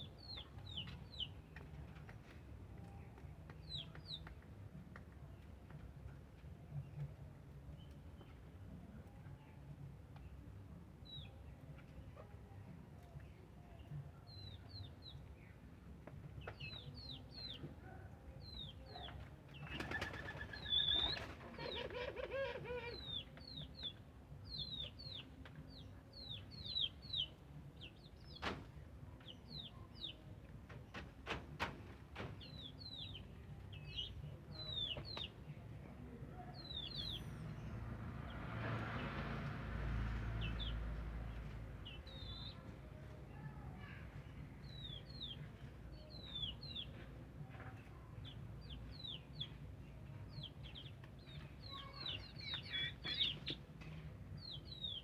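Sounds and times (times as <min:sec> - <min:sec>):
doves wing flapping: 0:19.6 - 0:22.2
birds chirping: 0:50.3 - 0:53.7.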